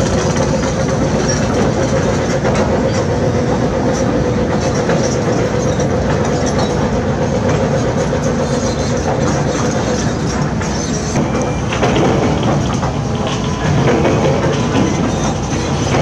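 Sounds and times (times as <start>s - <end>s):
diesel machinery drone: 0.0s - 16.0s.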